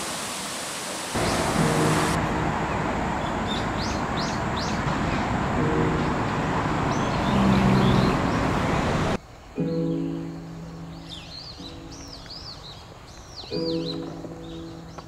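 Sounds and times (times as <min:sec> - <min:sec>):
loud rushing outdoor noise: 0:00.0 - 0:09.2
birds chirping: 0:01.2 - 0:15.0.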